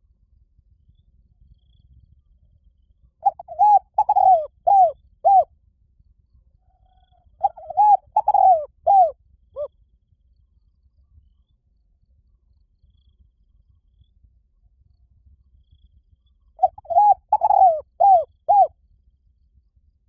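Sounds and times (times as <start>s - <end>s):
dove cooing: 3.2s - 5.5s, 7.4s - 9.7s, 16.6s - 18.7s.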